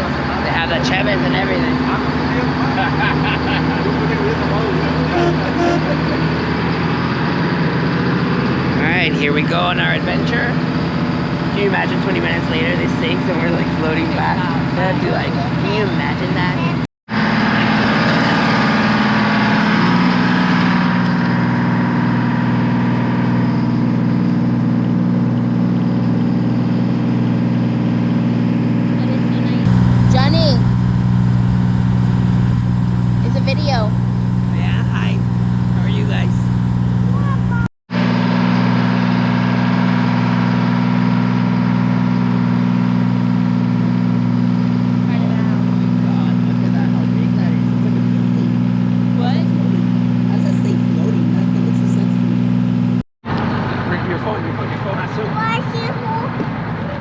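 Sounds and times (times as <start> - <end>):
boat engine running: 0.0 - 7.2, 29.7 - 37.7
wind hissing: 29.7 - 37.7.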